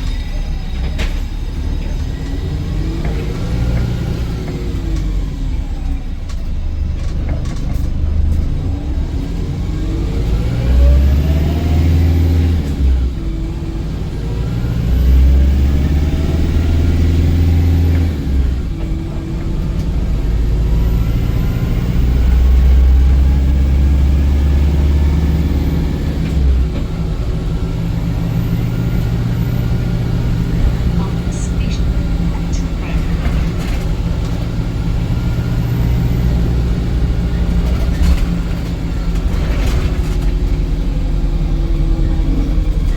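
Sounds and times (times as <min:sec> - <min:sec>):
bus engine accelerating with whine: 0:00.0 - 0:42.9.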